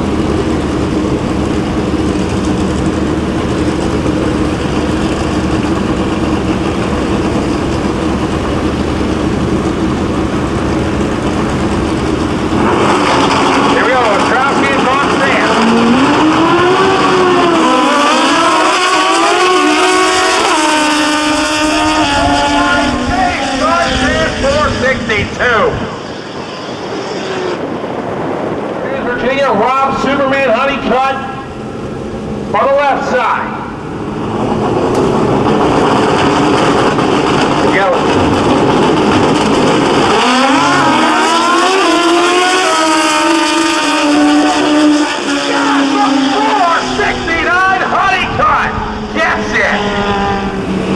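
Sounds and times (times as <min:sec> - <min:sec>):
motorcycle engine at high revs: 0:00.0 - 0:24.8, 0:33.7 - 0:47.0, 0:49.7 - 0:50.9.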